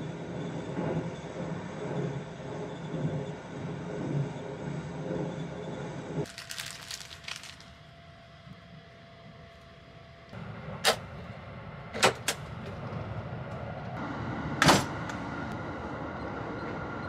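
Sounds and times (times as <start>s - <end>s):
train interior rumble: 0.0s - 17.0s.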